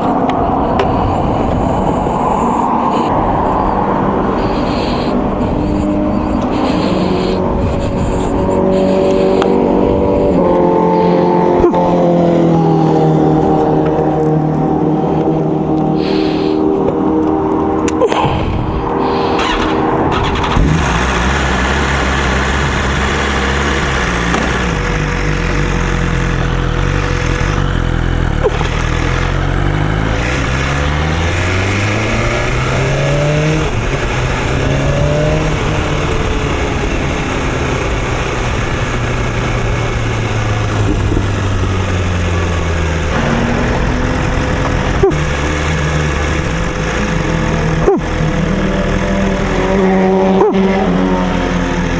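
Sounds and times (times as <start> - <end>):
wind noise: 0.0 - 10.4
motorcycle engine accelerating: 0.0 - 51.9.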